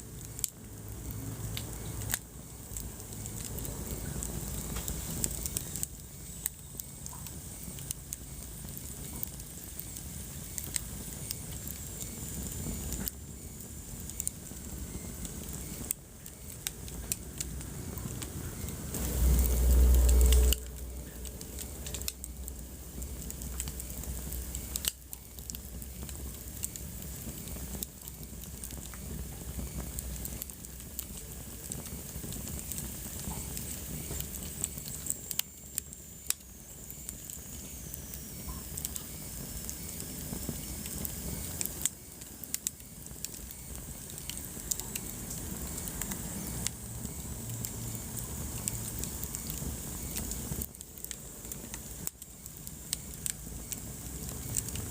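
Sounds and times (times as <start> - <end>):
wood fire crackling and popping: 0.0 - 54.9
low rumble: 17.0 - 24.8.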